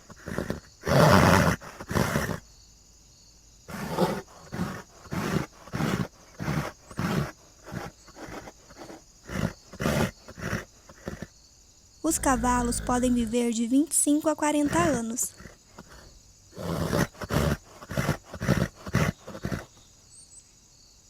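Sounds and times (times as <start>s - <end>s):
horse calling: 12.0s - 19.7s.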